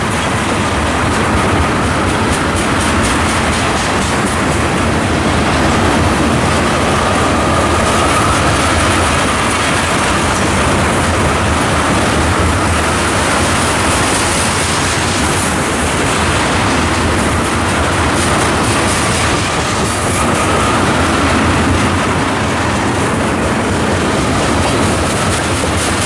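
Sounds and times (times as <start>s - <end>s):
faint high wheel whine: 0.0s - 26.0s
train wheels rumbling on rails: 0.0s - 26.0s.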